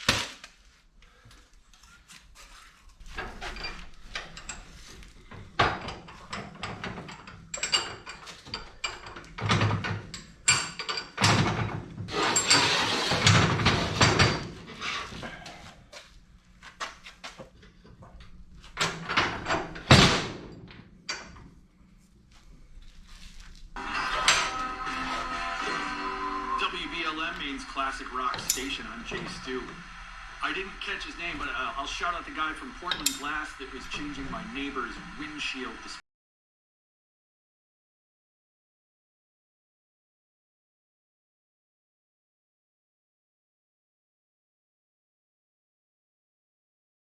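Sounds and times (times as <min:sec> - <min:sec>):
metal clanking and knocking: 0:03.0 - 0:15.3, 0:17.6 - 0:21.6, 0:28.3 - 0:29.4, 0:32.8 - 0:33.4
metal scraping: 0:12.0 - 0:15.8, 0:23.0 - 0:32.2.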